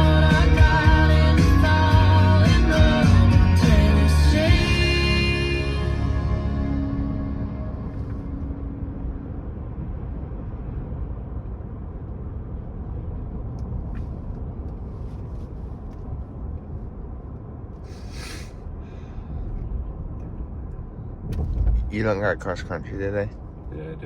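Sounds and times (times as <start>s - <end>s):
road and engine rumble in cabin: 0.0s - 24.0s
brief hiss: 17.9s - 18.6s.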